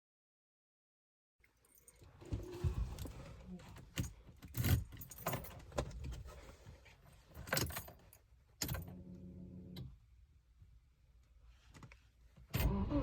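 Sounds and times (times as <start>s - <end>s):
car keys jangling: 1.5s - 6.4s, 7.2s - 9.1s.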